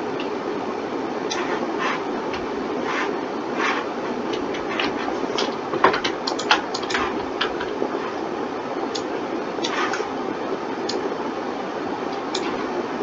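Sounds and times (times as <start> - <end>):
computer fan hum: 0.0 - 13.0
keyboard and mouse clicking: 1.3 - 1.6, 4.3 - 7.7.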